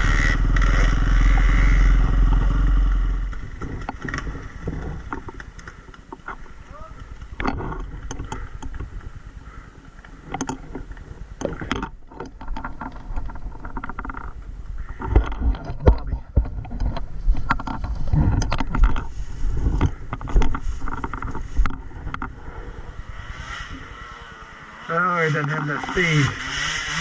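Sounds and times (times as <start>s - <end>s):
dirt bike engine revving: 0.0s - 5.1s, 22.5s - 27.0s.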